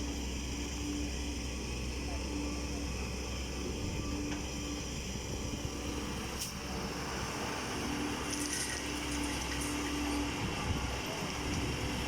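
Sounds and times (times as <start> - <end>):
heavy diesel machinery drone: 0.0 - 12.0.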